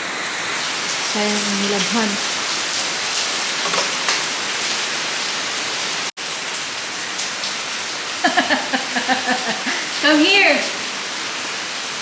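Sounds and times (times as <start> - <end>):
heavy rain on surfaces: 0.0 - 12.0
person speaking: 1.2 - 2.2.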